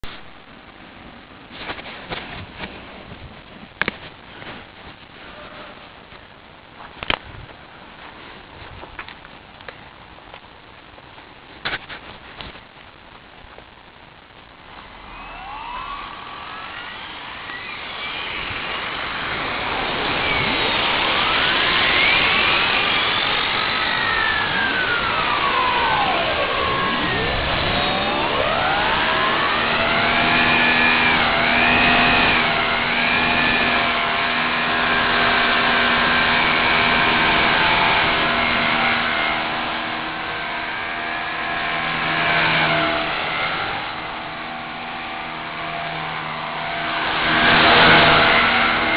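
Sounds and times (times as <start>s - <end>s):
wind and rain hiss: 0.0s - 48.9s
model helicopter motor whining: 14.9s - 48.9s.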